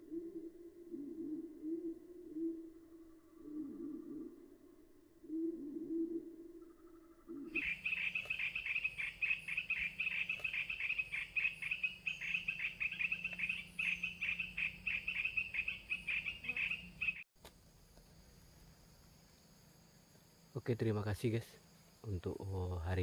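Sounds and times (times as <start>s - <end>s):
recorded bird chirps: 0.0s - 17.2s.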